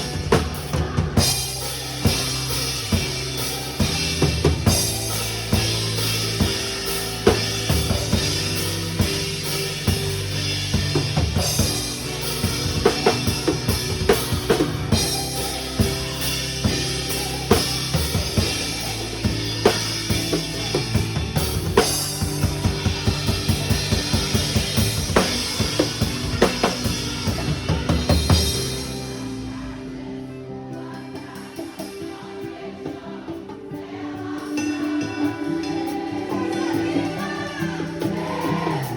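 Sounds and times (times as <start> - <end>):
low bass notes: 0.0 - 30.2
drum kit playing: 0.0 - 38.9.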